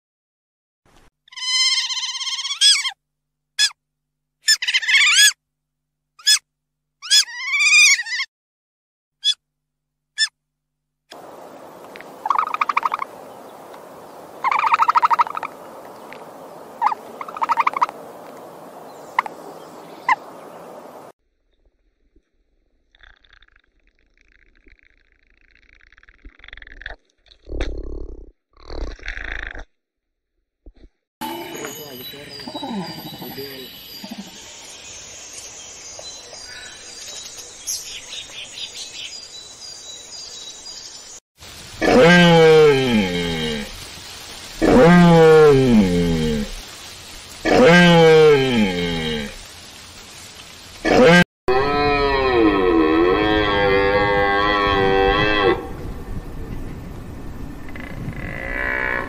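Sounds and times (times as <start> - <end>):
loud animal call: 1.3 - 3.0, 41.8 - 43.7
background hiss: 11.1 - 21.1, 31.2 - 51.2
birds chirping: 11.1 - 21.1, 31.2 - 51.1
natural ambience: 11.1 - 29.6, 31.2 - 59.0
bird calling in rattling bursts: 12.2 - 15.6, 16.7 - 17.9.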